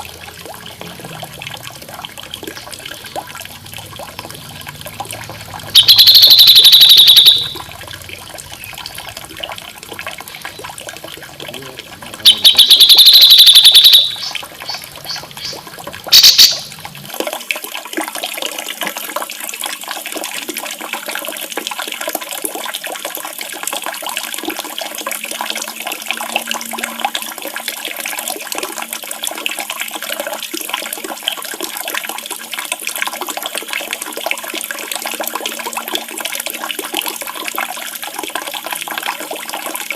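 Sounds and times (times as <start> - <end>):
running splashing water: 0.0 - 39.9
songbird trilling: 12.3 - 15.6.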